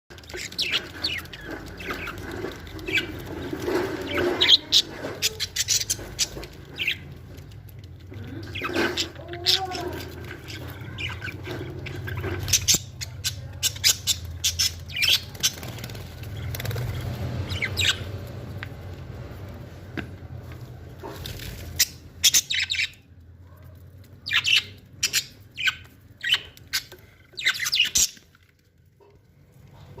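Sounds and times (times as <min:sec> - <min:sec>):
budgerigars chirping: 0:00.1 - 0:07.5, 0:08.2 - 0:18.3, 0:21.6 - 0:23.0, 0:24.2 - 0:28.3.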